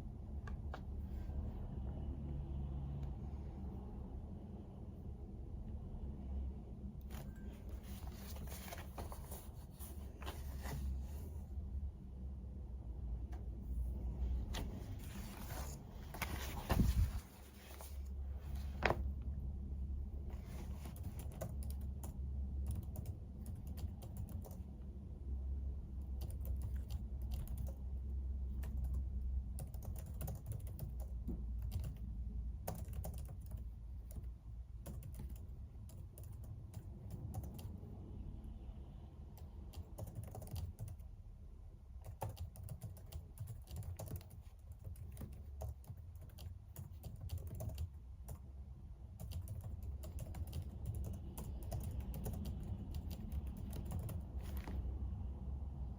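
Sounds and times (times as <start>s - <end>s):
steady low hum: 0.0s - 55.9s
computer keyboard typing: 20.7s - 24.8s, 26.1s - 32.0s, 32.6s - 37.7s, 39.4s - 41.1s, 42.0s - 48.4s, 49.1s - 54.6s.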